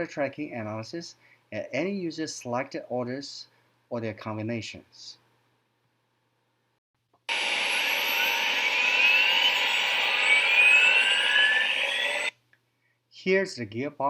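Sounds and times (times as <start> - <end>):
gearbox whines rising in pitch: 7.3 - 12.3
steady tone: 7.3 - 12.3.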